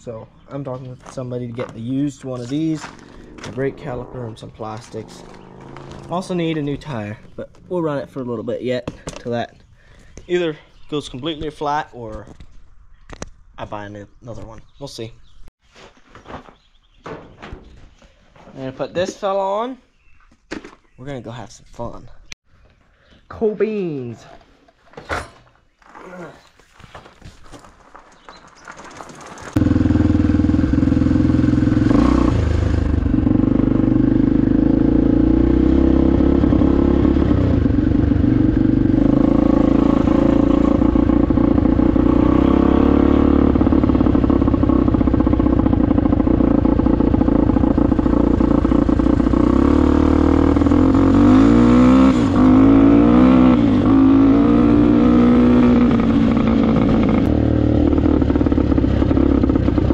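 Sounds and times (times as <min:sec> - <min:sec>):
dirt bike engine running: 0:01.1 - 0:07.2, 0:29.4 - 0:59.9.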